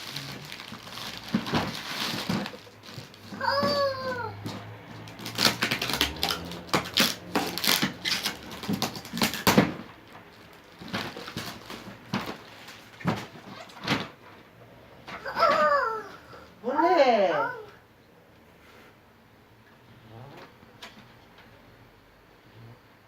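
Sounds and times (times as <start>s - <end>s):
packaging clicks taps and rustles: 0.0s - 3.8s, 4.4s - 14.1s.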